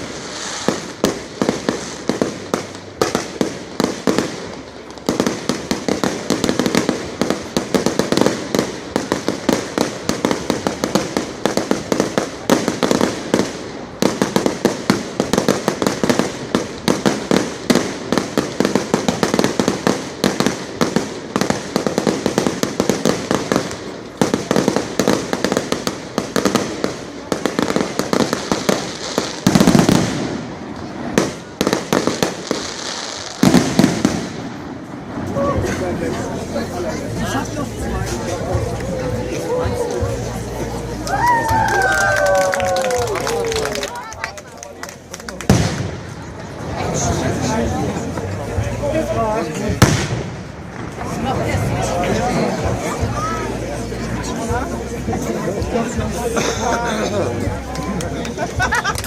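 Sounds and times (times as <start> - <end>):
fireworks bangs and crackles: 0.0 - 59.0
deep firework boom: 45.5 - 47.4, 49.7 - 51.6.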